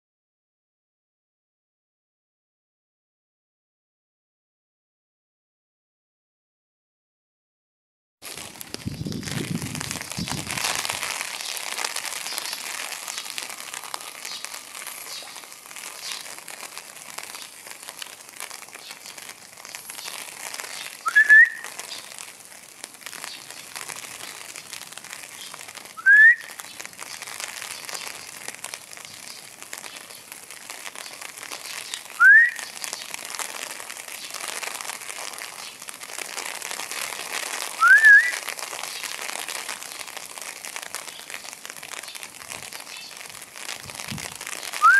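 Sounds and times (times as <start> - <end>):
steady hiss: 8.2 - 44.9.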